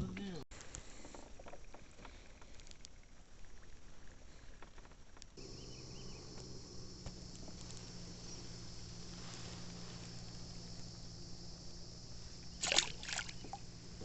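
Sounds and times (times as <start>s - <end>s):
high insect drone: 5.4s - 14.0s
low hum: 5.4s - 14.0s.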